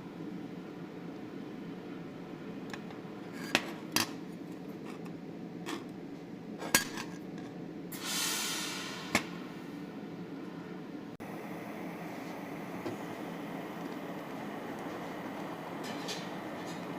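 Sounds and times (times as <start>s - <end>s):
short hiss: 8.0s - 9.2s
steady low hum: 8.6s - 16.9s.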